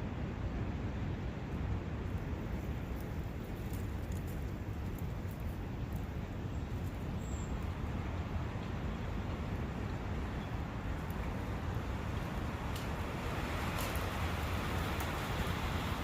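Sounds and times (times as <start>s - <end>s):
brook rushing water: 10.7s - 16.0s.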